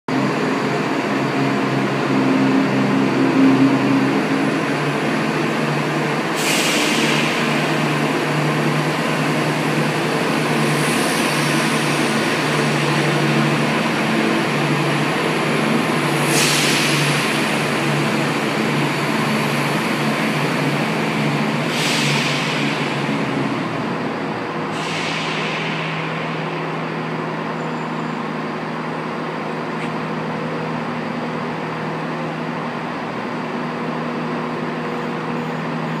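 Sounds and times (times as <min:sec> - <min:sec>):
low train engine hum: 0:00.1 - 0:36.0
short air hisses: 0:06.4 - 0:07.9, 0:16.2 - 0:17.4, 0:21.6 - 0:23.1, 0:24.7 - 0:26.6.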